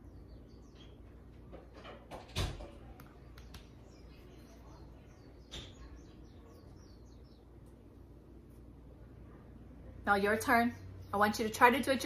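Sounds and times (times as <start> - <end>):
faint bird chirps: 3.2 - 7.8.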